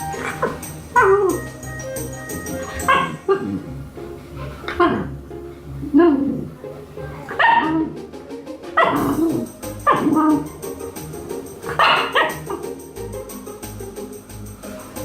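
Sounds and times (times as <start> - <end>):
dog barking: 7.4 - 7.9, 11.7 - 12.4.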